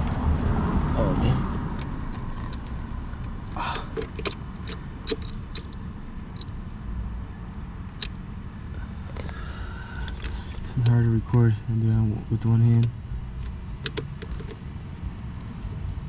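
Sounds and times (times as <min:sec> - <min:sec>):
low steady rumble: 0:00.0 - 0:16.0
sharp clicks and metallic clinks: 0:01.7 - 0:06.8, 0:10.0 - 0:14.7.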